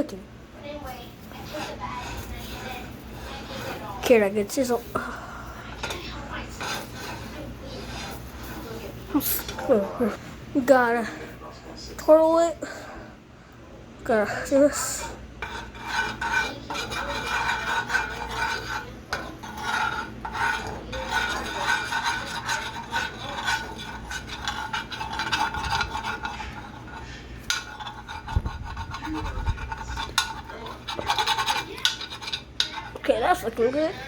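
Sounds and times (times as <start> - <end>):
utensil scraping a pan: 0.0 - 13.0, 14.2 - 34.0.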